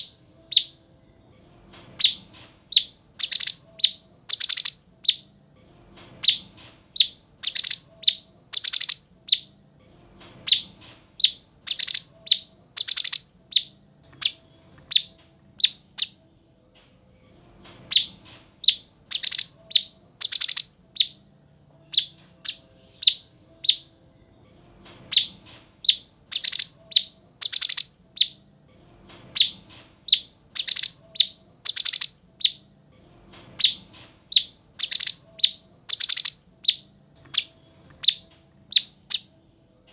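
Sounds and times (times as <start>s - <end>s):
bird chirping high sharp notes: 2.8s - 5.2s, 7.0s - 9.5s, 10.5s - 14.4s, 18.7s - 21.2s, 25.9s - 28.4s, 30.2s - 32.6s, 34.4s - 38.2s.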